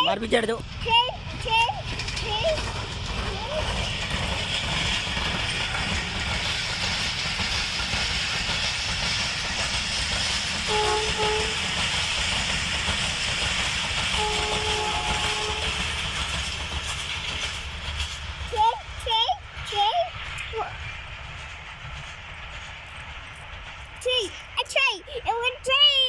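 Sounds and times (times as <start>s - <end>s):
train rumbling past on rails: 0.0s - 26.0s
train horn: 10.7s - 11.7s, 14.2s - 16.1s.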